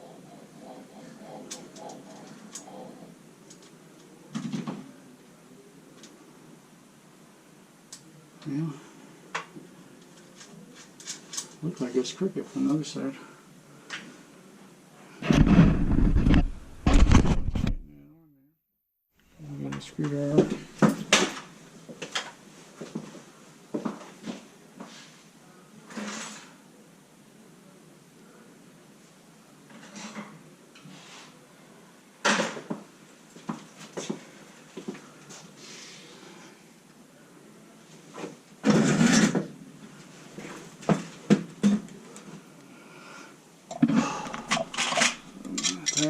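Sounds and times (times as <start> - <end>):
hardware rattling scrape: 38.6 - 39.4, 43.8 - 46.0.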